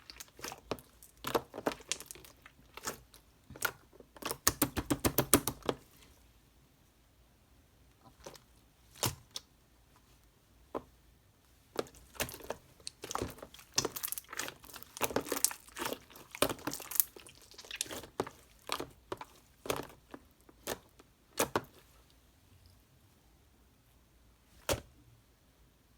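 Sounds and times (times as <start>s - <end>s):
crinkling handling noises: 11.7s - 22.2s.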